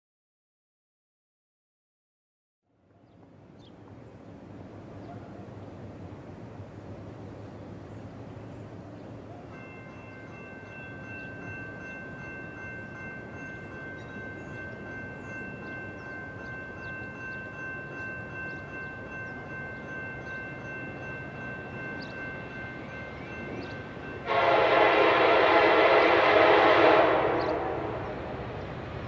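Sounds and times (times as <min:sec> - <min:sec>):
distant train rumble: 0:02.8 - 0:29.0
birds chirping: 0:07.2 - 0:24.2
steady high ringing tones: 0:09.5 - 0:24.6
locomotive horn: 0:24.2 - 0:28.6.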